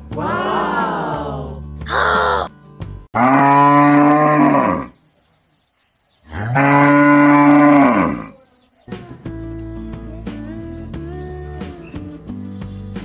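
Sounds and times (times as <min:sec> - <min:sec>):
cattle mooing: 0:03.2 - 0:05.0, 0:06.3 - 0:08.4.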